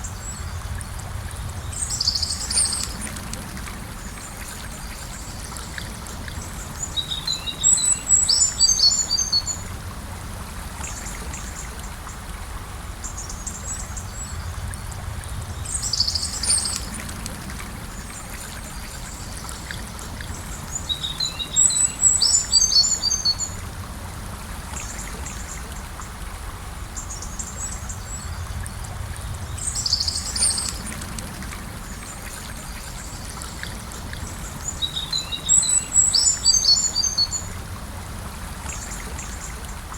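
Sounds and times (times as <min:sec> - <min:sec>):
river flowing: 0:00.0 - 0:39.9
songbird chirping: 0:29.3 - 0:31.0, 0:31.9 - 0:37.5.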